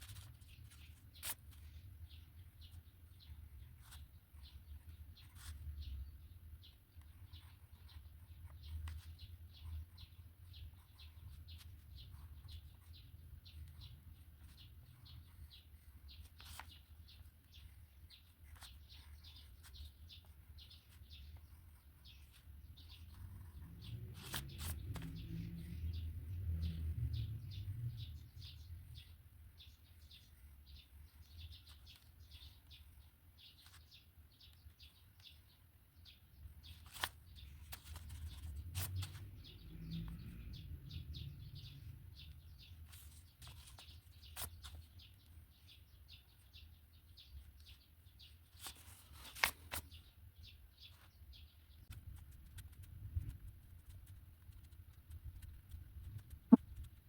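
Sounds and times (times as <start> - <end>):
pen scratching on paper: 3.2 - 5.6, 7.0 - 26.1.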